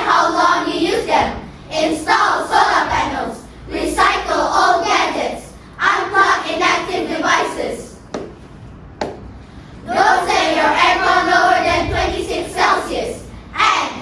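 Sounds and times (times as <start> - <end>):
children chanting in unison: 0.0 - 8.0, 9.8 - 14.0.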